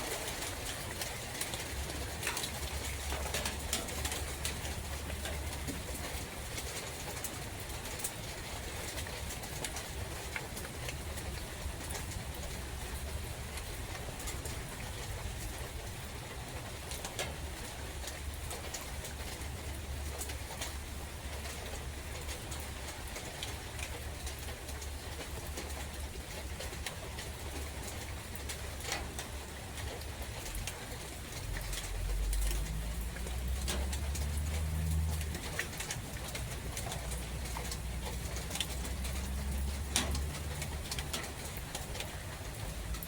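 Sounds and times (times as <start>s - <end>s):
steady rain in forest: 0.0s - 43.0s
louder water drips: 18.0s - 43.0s.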